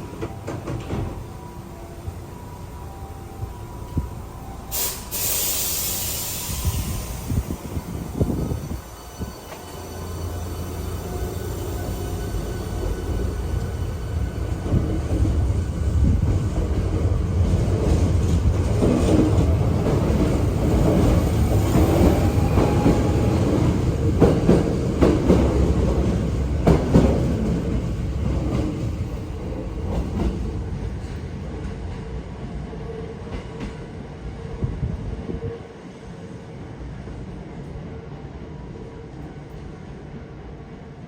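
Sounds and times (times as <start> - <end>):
train wheels rumbling on rail: 0.0 - 2.3, 3.2 - 37.9.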